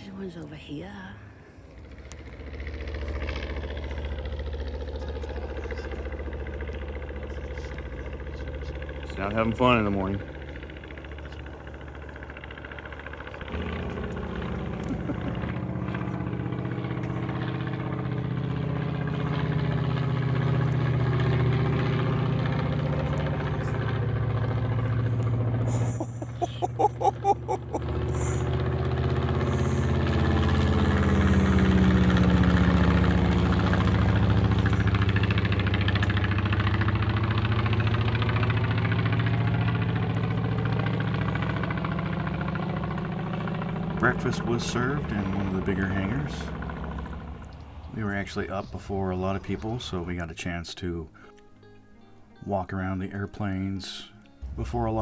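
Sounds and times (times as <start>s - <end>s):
propeller airplane engine: 0.0s - 50.2s, 54.4s - 55.0s
fast pulsing engine beat: 1.8s - 50.2s, 54.4s - 55.0s.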